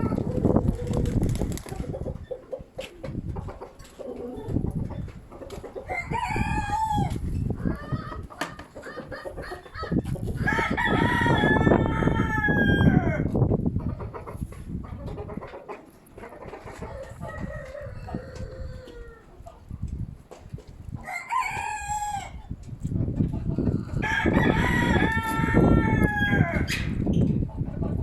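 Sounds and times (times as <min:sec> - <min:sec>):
wind rumbling on microphone: 0:00.0 - 0:15.6, 0:16.2 - 0:28.0
rooster crowing: 0:10.4 - 0:13.3, 0:17.1 - 0:19.2, 0:21.0 - 0:22.4, 0:24.0 - 0:26.7.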